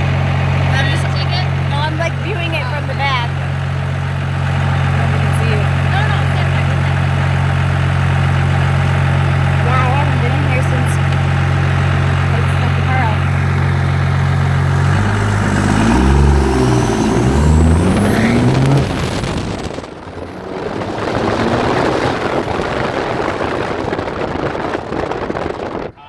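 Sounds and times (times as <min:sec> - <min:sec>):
diesel engine revving: 0:00.0 - 0:26.0
high whine: 0:00.0 - 0:26.0.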